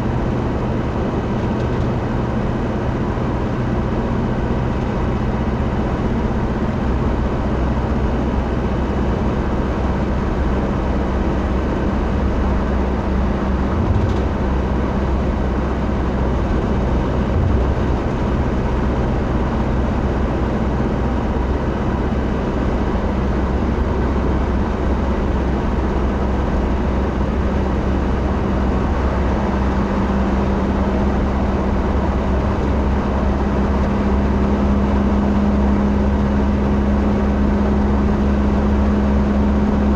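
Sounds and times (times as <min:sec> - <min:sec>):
road noise: 0:00.0 - 0:39.9
vehicle engine drone: 0:00.0 - 0:39.9
low hum: 0:11.1 - 0:21.3.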